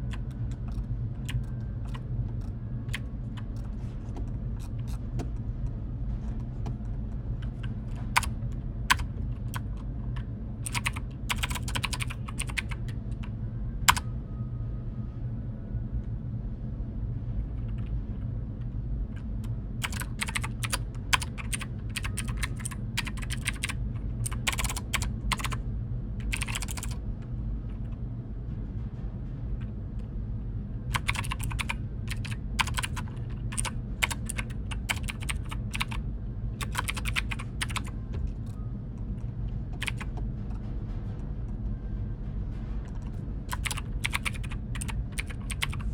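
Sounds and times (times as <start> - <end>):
steady low hum: 0.0 - 45.9
keyboard typing: 0.1 - 5.3, 6.6 - 9.8, 10.6 - 13.0, 19.8 - 25.6, 26.2 - 27.0, 30.9 - 36.0, 36.6 - 38.6, 39.8 - 40.2, 42.9 - 45.9.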